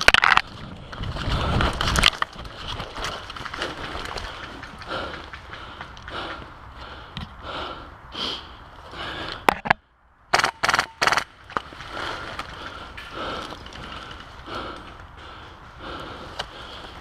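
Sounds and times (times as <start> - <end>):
sharp clicks: 10.3 - 11.3
airsoft rifle full-auto fire: 10.4 - 11.3.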